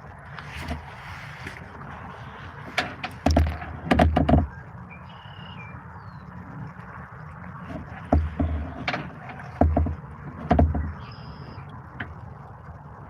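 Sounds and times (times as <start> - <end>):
low background rumble: 0.0 - 13.0
hollow knocks on kayak hull: 2.7 - 4.6, 7.6 - 11.2.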